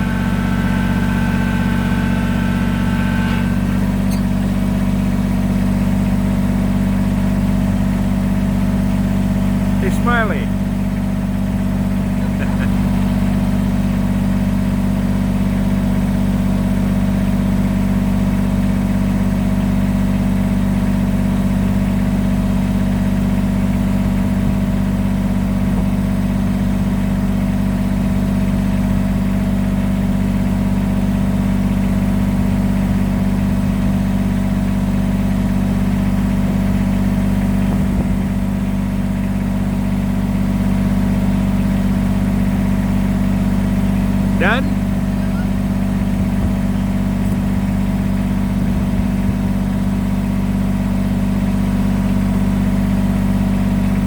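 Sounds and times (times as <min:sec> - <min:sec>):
tractor diesel engine droning: 0:00.0 - 0:54.0.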